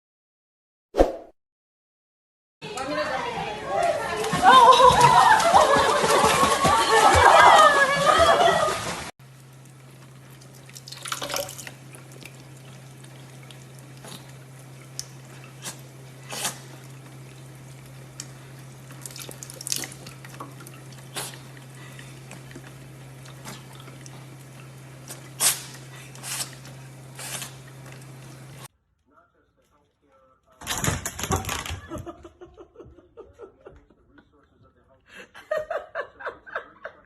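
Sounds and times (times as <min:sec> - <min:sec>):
water dripping: 0:08.8 - 0:25.9
steady low hum: 0:09.2 - 0:30.6.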